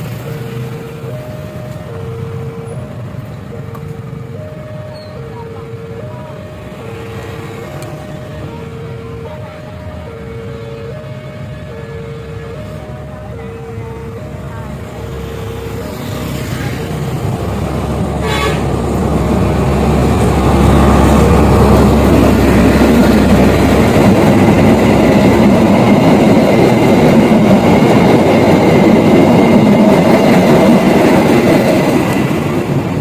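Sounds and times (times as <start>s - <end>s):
train rumble and wheel noise: 0.0s - 33.0s
train horn toot: 18.2s - 18.8s.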